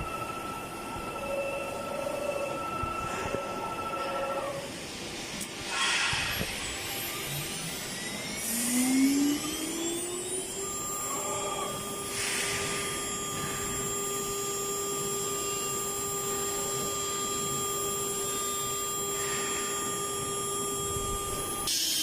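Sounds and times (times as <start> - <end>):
spindle whining: 6.6 - 21.7.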